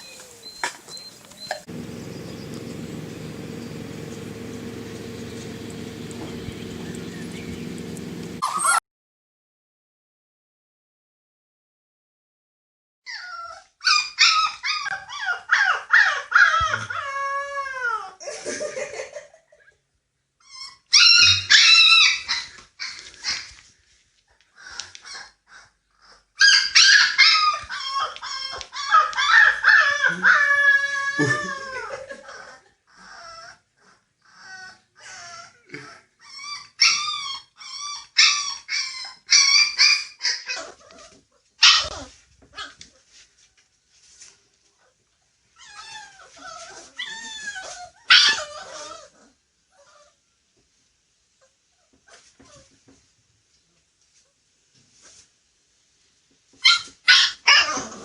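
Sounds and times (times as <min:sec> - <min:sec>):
puppies yelping and whining: 0:00.0 - 0:08.8, 0:13.1 - 0:18.1, 0:20.4 - 0:23.6, 0:24.6 - 0:42.8, 0:45.6 - 0:50.2.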